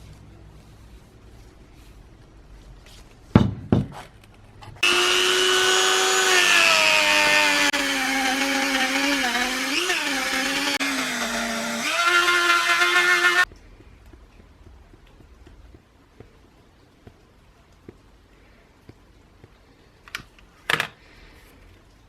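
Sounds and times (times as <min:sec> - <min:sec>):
bench grinder running: 0:04.8 - 0:13.4.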